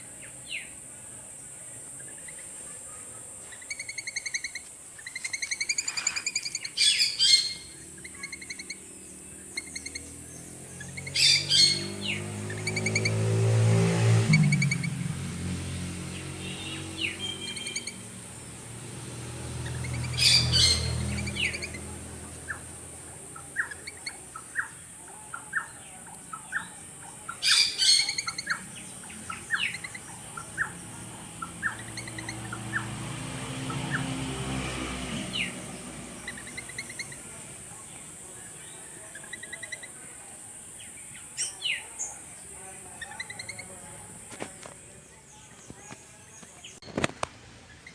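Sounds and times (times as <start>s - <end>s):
birds chirping: 0.0s - 47.9s
harsh bird squawks: 2.2s - 10.2s, 10.8s - 13.2s, 16.4s - 18.1s, 19.6s - 22.7s, 23.3s - 32.9s.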